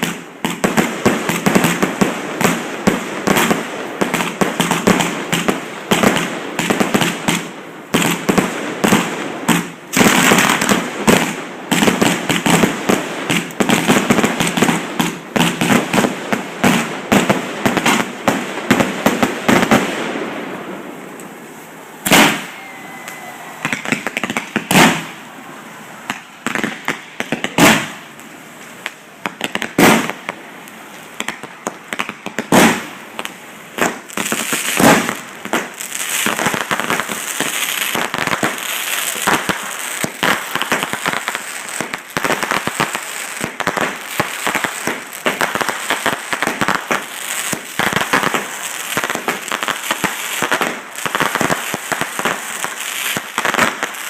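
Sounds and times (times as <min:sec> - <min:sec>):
rapid firework pops and crackling: 0:00.0 - 0:20.4, 0:22.0 - 0:22.5, 0:23.1 - 0:25.2, 0:26.0 - 0:54.0
firework shell bursts: 0:22.0 - 0:25.2.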